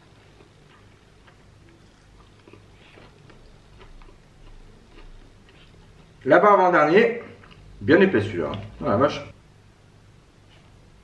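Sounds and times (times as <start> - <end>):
faint chewing: 0.0 - 6.3, 7.2 - 7.8.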